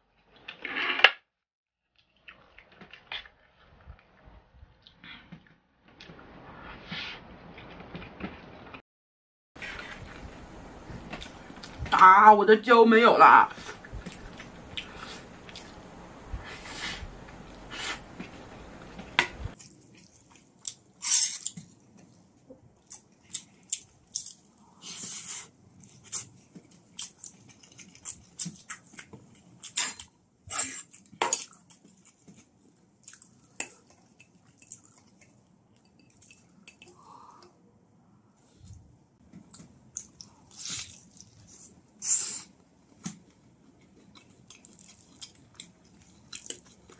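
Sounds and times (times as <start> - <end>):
person chewing rice: 13.6 - 15.8, 19.5 - 29.8, 30.8 - 37.1, 39.5 - 46.9.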